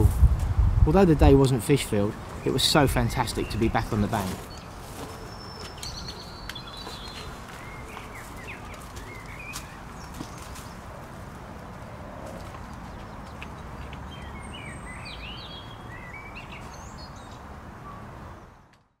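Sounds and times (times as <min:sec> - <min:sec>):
small birds chirping and singing: 0:01.5 - 0:11.0, 0:12.4 - 0:17.5.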